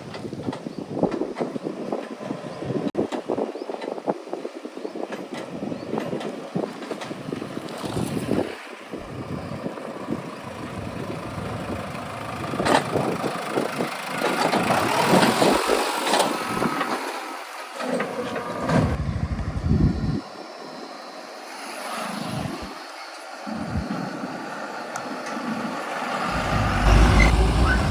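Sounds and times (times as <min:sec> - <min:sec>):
diesel vehicle engine: 0:09.0 - 0:20.0, 0:24.2 - 0:27.9
deep rumble: 0:26.3 - 0:27.9.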